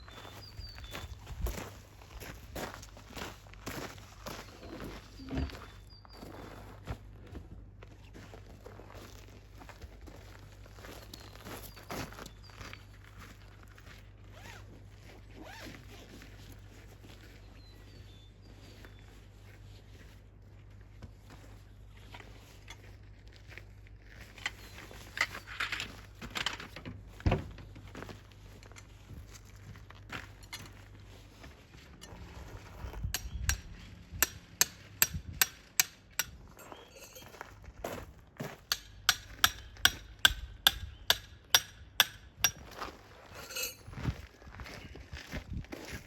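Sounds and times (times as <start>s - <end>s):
footsteps crunching on gravel: 0.0s - 7.2s, 34.8s - 39.4s, 42.5s - 46.0s
hammer striking metal pegs: 33.2s - 37.3s, 38.7s - 42.6s, 43.4s - 43.8s.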